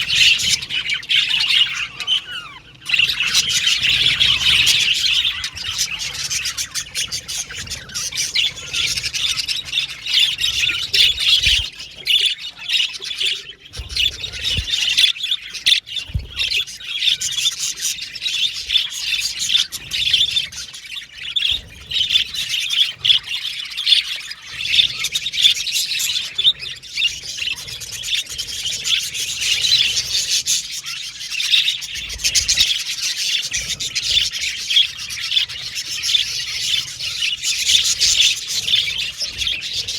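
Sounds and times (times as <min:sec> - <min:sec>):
budgerigar squawks: 0:00.0 - 0:20.7
budgerigars chirping: 0:00.0 - 0:39.9.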